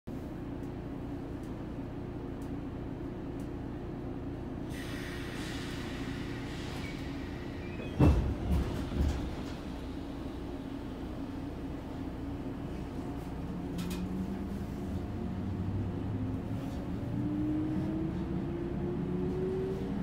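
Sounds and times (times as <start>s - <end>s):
hiss of air: 4.7s - 7.6s.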